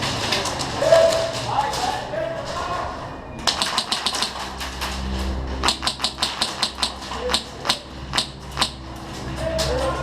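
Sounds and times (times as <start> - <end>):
airsoft gun shots clacking: 3.5 - 4.5, 5.6 - 8.8.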